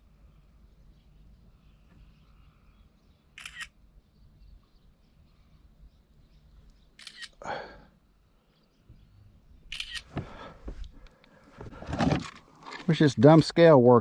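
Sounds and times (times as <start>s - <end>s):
camera shutter clicks: 3.4s - 3.8s, 7.0s - 7.4s, 9.7s - 10.1s.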